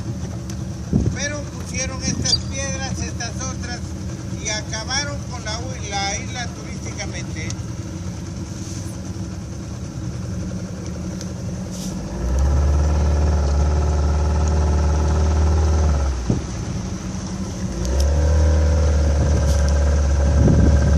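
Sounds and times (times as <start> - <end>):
motorboat engine revving: 0.0 - 20.9.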